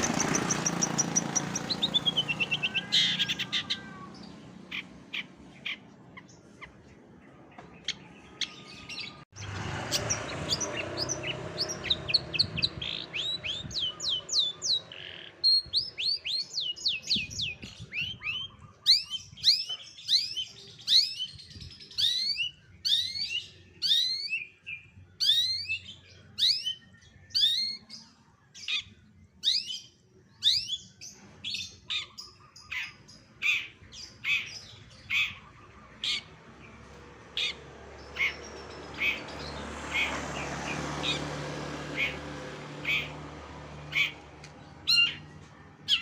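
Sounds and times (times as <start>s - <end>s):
songbird whistling and chipping: 9.9s - 28.0s, 28.6s - 36.4s, 44.8s - 46.0s.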